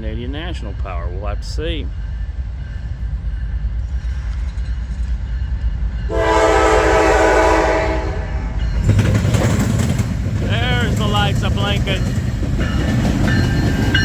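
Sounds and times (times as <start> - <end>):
train rumble and rail clatter: 0.0 - 14.0
locomotive air horn: 6.1 - 8.6.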